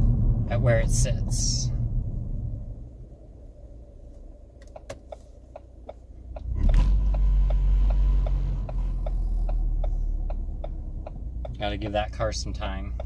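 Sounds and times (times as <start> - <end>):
car engine accelerating: 0.0 - 4.8, 6.2 - 13.0
car turn signal clicking: 4.6 - 13.0.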